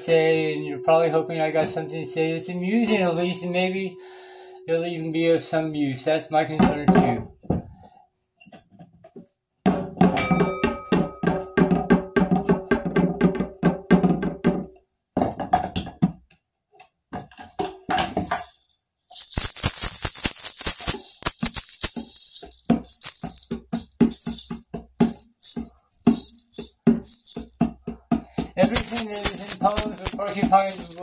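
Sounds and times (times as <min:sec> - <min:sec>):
percussion music: 0:00.0 - 0:04.0, 0:10.1 - 0:14.4, 0:17.4 - 0:31.0
tambourine rattle: 0:18.0 - 0:31.0.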